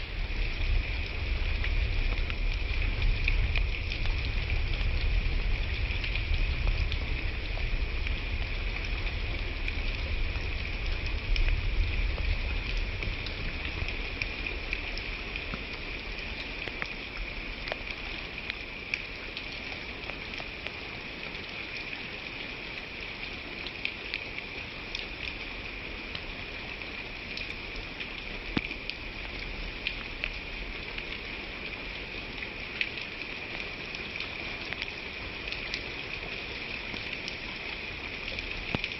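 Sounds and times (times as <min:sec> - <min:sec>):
low rumble: 0:00.0 - 0:14.3
steady rain falling: 0:00.0 - 0:38.9.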